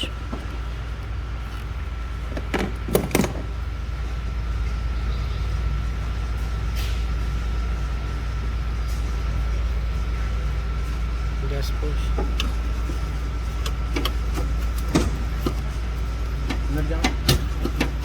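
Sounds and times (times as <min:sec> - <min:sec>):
low background hum: 0:00.0 - 0:18.0
plastic parts knocking and clattering: 0:02.3 - 0:03.5.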